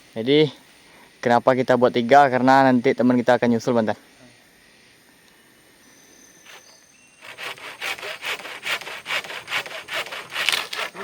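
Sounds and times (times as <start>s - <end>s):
hand saw cutting wood: 6.5s - 11.0s.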